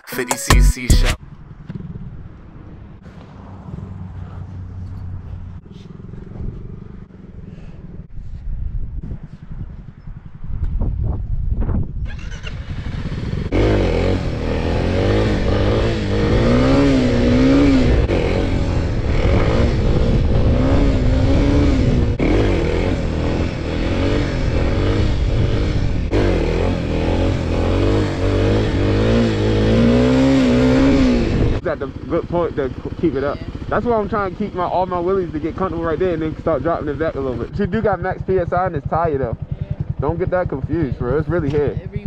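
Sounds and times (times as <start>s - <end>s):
dirt bike engine revving: 12.1s - 42.0s.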